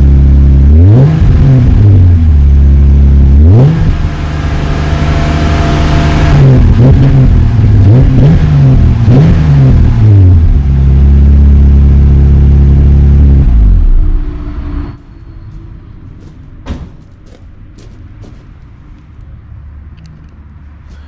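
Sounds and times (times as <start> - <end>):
car exhaust revving and idling: 0.0 - 16.6.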